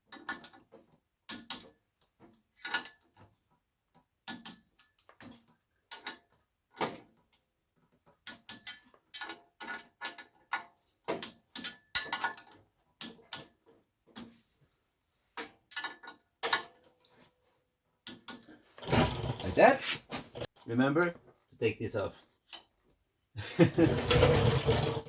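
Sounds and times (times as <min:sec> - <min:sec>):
hand tools clicking on metal bolts: 0:08.2 - 0:13.5, 0:18.0 - 0:19.8.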